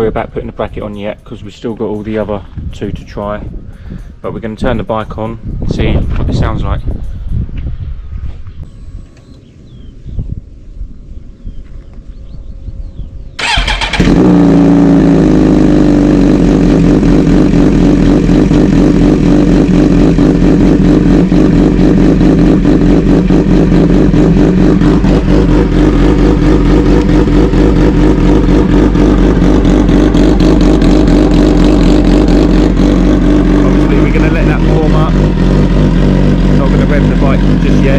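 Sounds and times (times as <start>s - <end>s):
motorcycle engine starting and idling: 13.3s - 37.9s.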